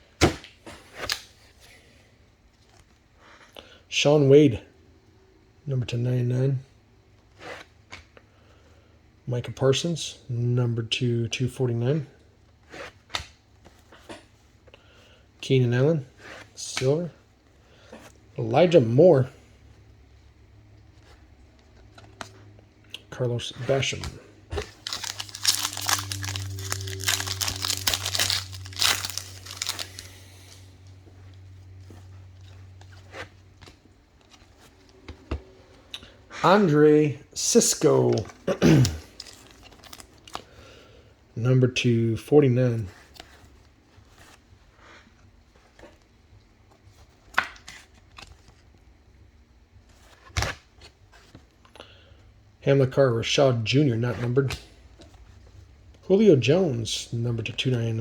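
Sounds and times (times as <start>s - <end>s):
cards rustling: 23.4s - 30.7s, 37.4s - 40.7s
foil wrapper tearing and crinkling: 24.6s - 30.6s, 39.1s - 40.4s.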